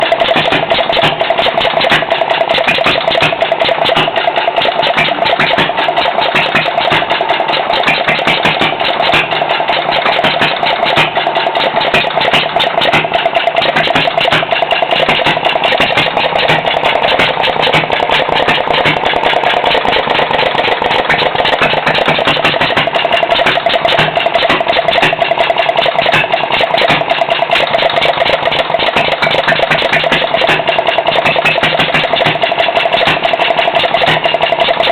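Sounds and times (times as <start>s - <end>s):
small engine running: 0.0s - 34.9s.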